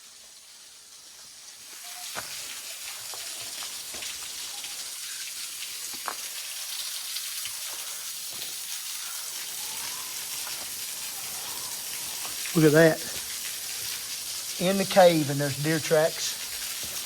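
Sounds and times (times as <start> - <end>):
waterfall splashing: 0.9 - 17.0.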